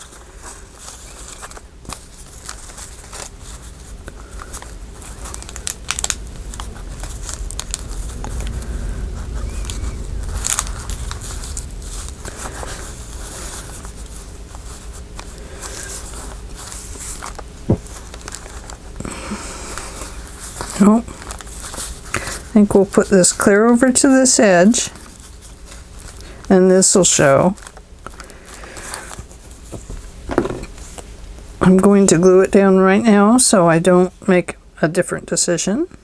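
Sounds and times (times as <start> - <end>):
paper rustling and crinkling: 0.0 - 23.1.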